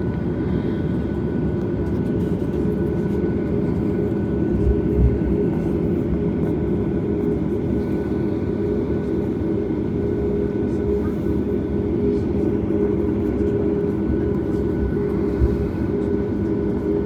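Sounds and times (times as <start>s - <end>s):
jet engine cabin drone: 0.0s - 17.0s.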